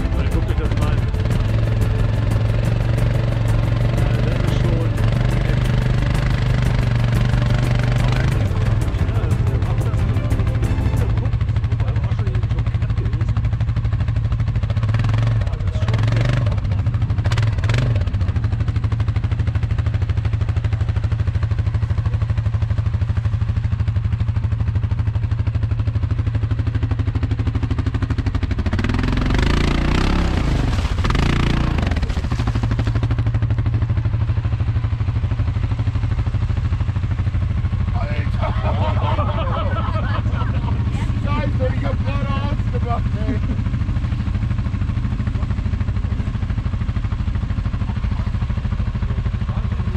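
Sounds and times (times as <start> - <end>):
quad engine revving under load: 0.0 - 19.1, 27.2 - 34.2.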